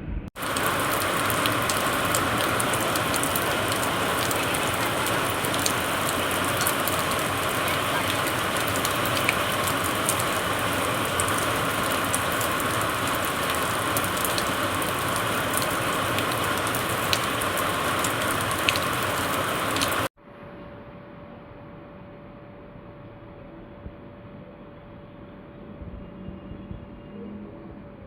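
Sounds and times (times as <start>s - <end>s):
heavy rain pouring: 0.4s - 20.1s.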